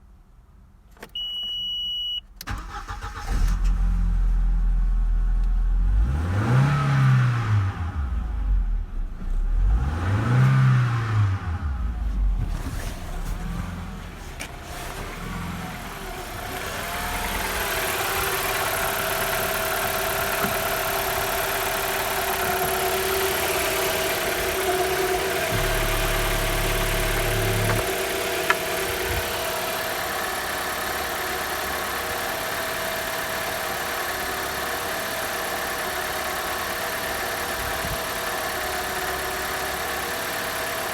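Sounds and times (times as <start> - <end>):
short beep: 1.2 - 2.3
car engine starting and revving: 2.5 - 40.9
car engine idling: 7.7 - 40.9.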